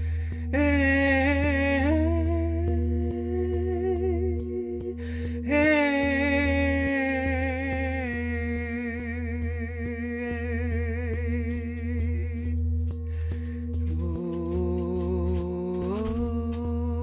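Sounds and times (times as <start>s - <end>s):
breath: 0.0s - 0.5s, 5.0s - 5.4s, 13.0s - 13.8s.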